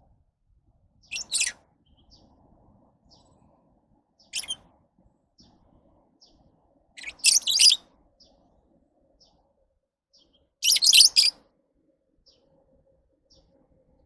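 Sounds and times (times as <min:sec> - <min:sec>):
lovebirds chirping: 0:01.1 - 0:02.3, 0:04.2 - 0:04.6, 0:07.0 - 0:08.4, 0:10.2 - 0:11.4.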